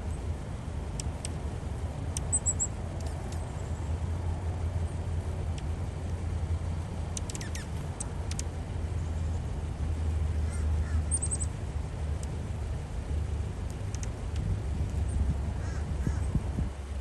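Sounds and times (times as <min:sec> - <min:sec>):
steady low rumble: 0:00.0 - 0:17.0
high bird chirps: 0:02.2 - 0:02.8, 0:07.2 - 0:08.4, 0:10.5 - 0:11.6
faint ticks: 0:07.1 - 0:08.5, 0:13.6 - 0:15.1.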